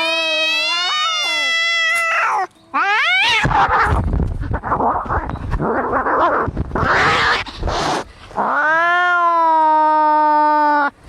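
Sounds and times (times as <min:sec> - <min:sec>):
cat yowling: 0:00.0 - 0:04.0, 0:05.9 - 0:07.5, 0:08.4 - 0:10.9
cats hissing and growling: 0:00.5 - 0:10.9.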